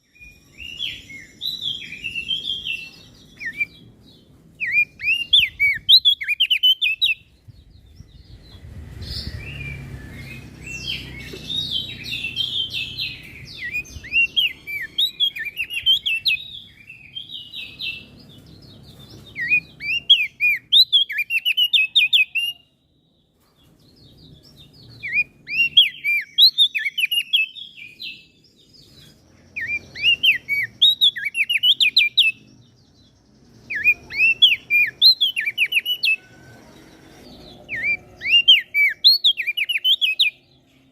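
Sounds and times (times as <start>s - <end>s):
bird chirping song: 0.0s - 40.9s
low rumble: 7.3s - 14.1s.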